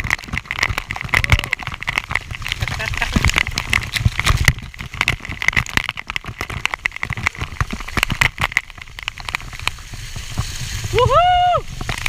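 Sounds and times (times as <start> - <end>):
close knocks and scrapes: 0.0 - 10.8
waterfall water splashing: 0.0 - 12.0.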